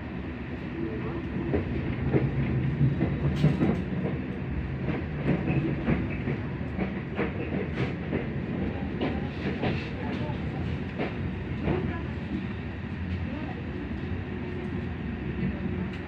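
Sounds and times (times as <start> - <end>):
train wheels rumbling on rails: 0.1 - 16.0.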